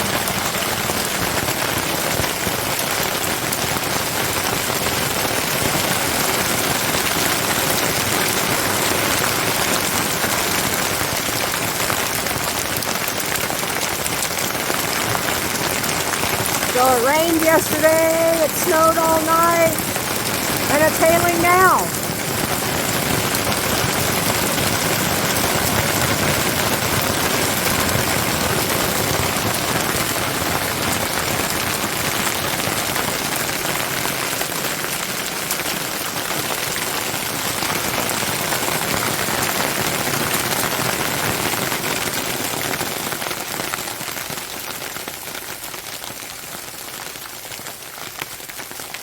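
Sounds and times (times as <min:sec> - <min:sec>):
hailstones clattering on surfaces: 0:22.1 - 0:45.2.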